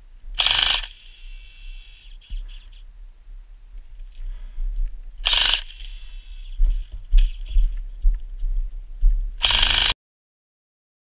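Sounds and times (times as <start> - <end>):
wind rumble on microphone: 6.0 - 9.4.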